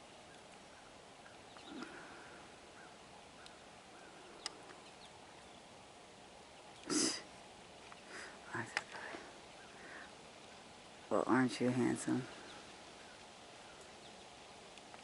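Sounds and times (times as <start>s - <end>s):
faint bird chirps: 0.2s - 5.7s, 6.4s - 10.6s, 12.2s - 14.4s.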